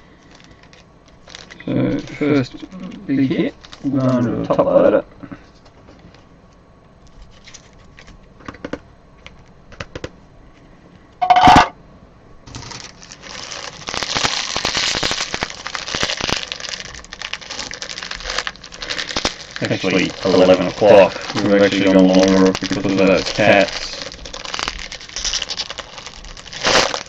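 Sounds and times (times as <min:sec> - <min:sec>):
wrapper crinkling: 0:00.1 - 0:04.6, 0:07.1 - 0:08.3, 0:12.5 - 0:27.0
clicks of cards and plastic: 0:07.1 - 0:10.1.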